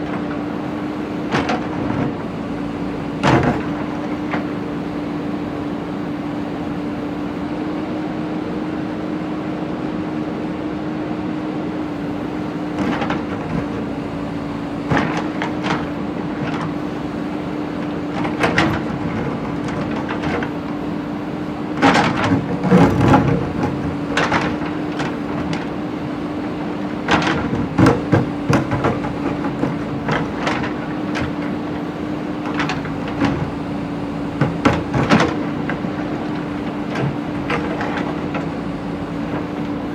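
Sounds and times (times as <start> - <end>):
diesel engine running: 11.8 - 39.9
bucket clanking on brick and stone: 21.6 - 39.9.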